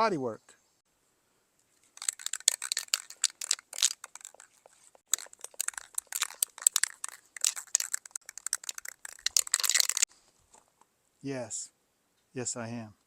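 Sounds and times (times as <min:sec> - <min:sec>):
crackling handling noise: 0:01.6 - 0:10.9.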